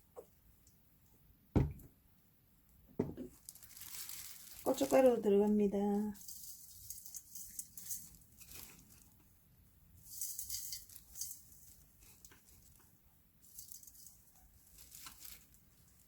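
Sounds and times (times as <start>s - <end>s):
pepper flakes sprinkled in bowl: 3.4s - 9.2s, 10.0s - 16.0s.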